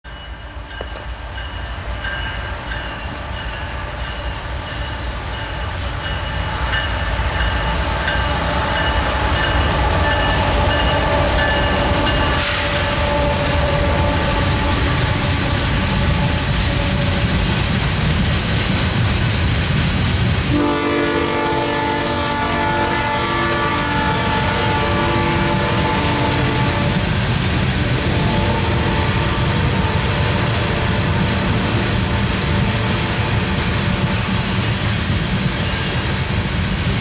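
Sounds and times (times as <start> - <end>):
diesel locomotive rumble: 0.5 - 37.0
short hiss: 12.4 - 13.0.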